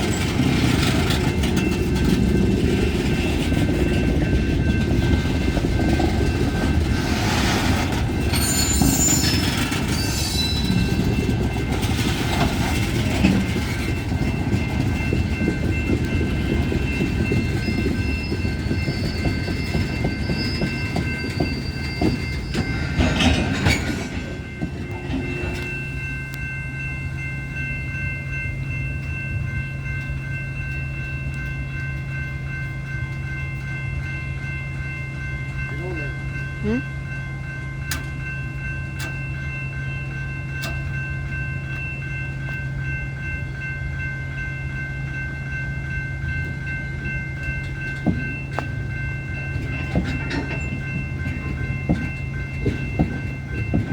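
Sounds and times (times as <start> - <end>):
wheels clicking over rail joints: 0.0 - 25.8, 46.3 - 53.9
high-pitched wheel squeals: 8.3 - 11.0, 17.6 - 24.1.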